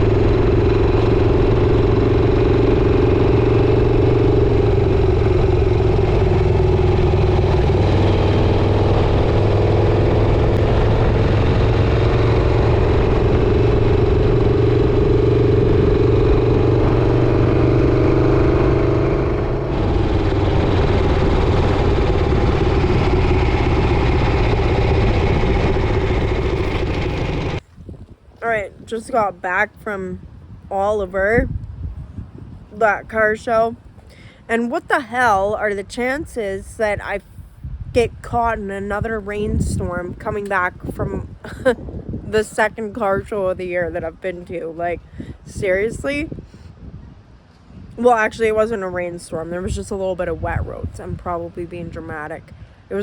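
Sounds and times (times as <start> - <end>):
motorcycle engine running: 0.0 - 27.6.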